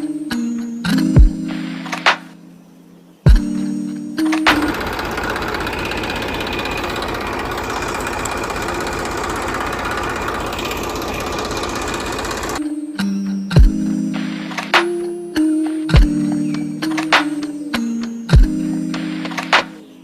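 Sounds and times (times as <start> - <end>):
small motor rattling: 4.5 - 12.6.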